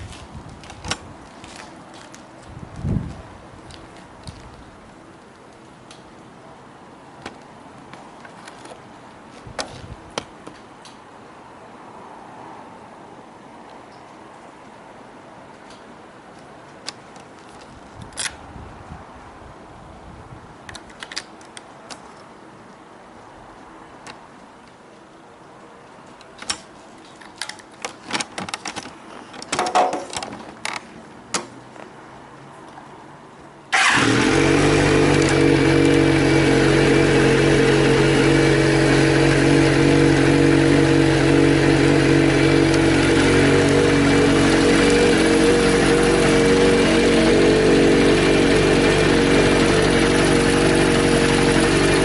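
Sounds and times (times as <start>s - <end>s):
motorcycle engine starting and idling: 33.7s - 52.0s.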